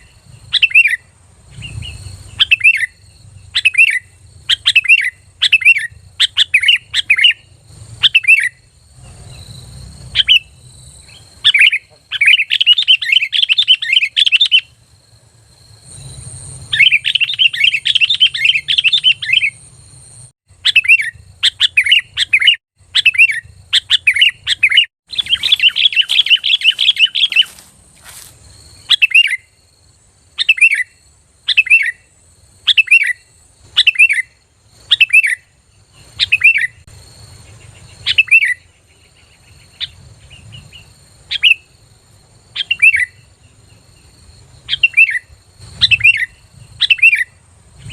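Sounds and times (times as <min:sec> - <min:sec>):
bird singing: 0:00.0 - 0:47.9
bird chattering: 0:16.7 - 0:19.6, 0:20.5 - 0:27.7.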